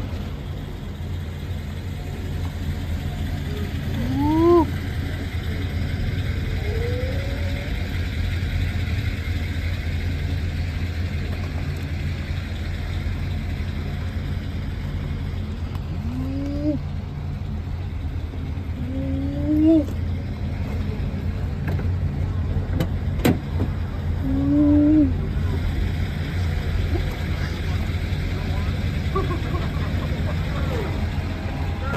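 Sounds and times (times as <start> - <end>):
car driving drone from cabin: 0.0 - 31.9.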